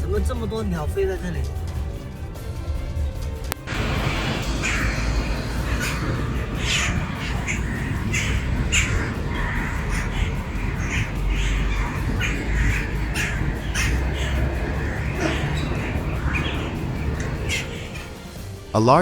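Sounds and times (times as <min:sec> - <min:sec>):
flock of starlings calling: 0:03.7 - 0:18.5.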